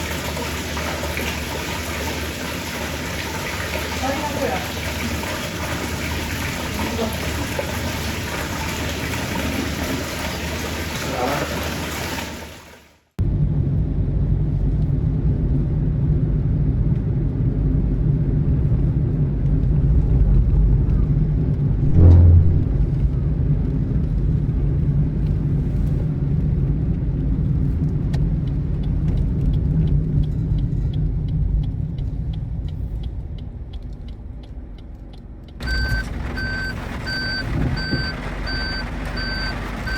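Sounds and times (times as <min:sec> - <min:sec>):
motor vehicle rumbling: 0:13.2 - 0:39.9
heavy thud: 0:21.8 - 0:23.2
even rushing noise: 0:21.8 - 0:23.3.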